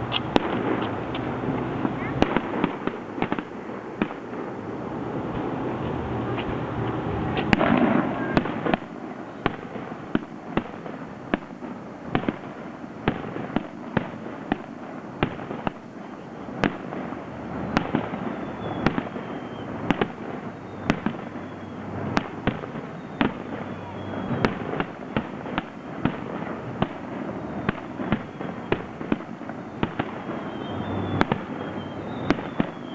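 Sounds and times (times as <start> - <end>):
fireworks bangs: 0.0 - 32.9
fireworks crackling rumble: 0.0 - 32.9
faint falling whistles: 18.2 - 19.8, 20.5 - 22.0, 22.8 - 24.7, 27.4 - 29.0, 29.6 - 32.9.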